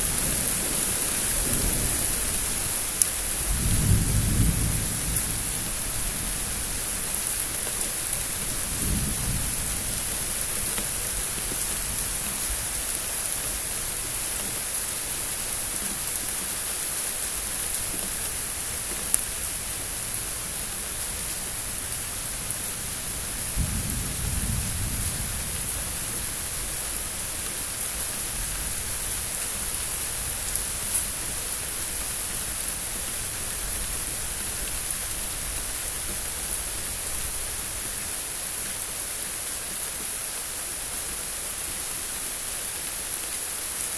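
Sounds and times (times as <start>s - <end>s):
thunder rumbling: 0.0s - 7.1s, 8.3s - 10.7s, 22.8s - 27.3s
steady rain: 0.0s - 43.9s.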